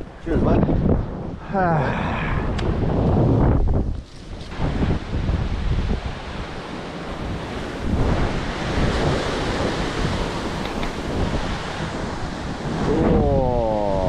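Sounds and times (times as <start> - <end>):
wind buffeting the microphone: 0.0 - 14.0
waves washing over rocks: 4.5 - 14.0.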